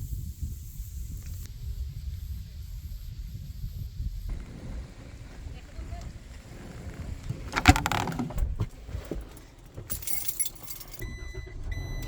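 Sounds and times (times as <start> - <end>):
keys jangling: 8.9 - 11.1
vehicle warning chime beeping: 10.2 - 12.0.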